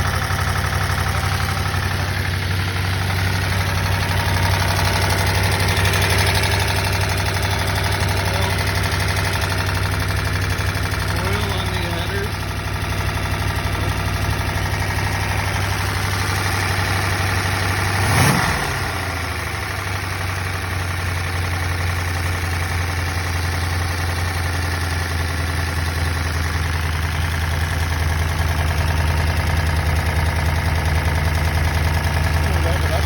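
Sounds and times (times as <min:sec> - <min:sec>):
engine revving: 0:00.0 - 0:12.4, 0:13.0 - 0:19.6
engine idling with valve clatter: 0:00.0 - 0:33.0.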